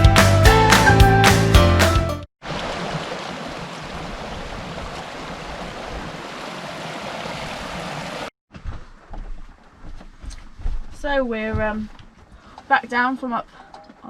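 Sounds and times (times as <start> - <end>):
running water rushing: 2.4 - 8.3.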